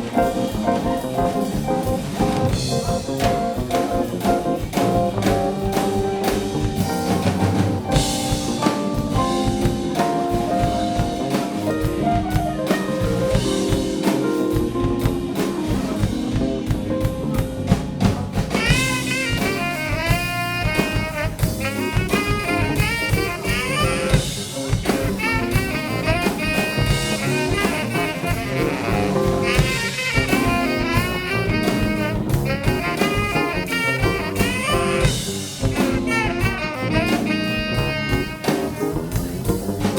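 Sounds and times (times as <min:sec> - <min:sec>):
bass: 0:00.0 - 0:39.9
drum kit: 0:00.0 - 0:39.9
piano: 0:00.0 - 0:39.9
saxophone: 0:00.0 - 0:39.9.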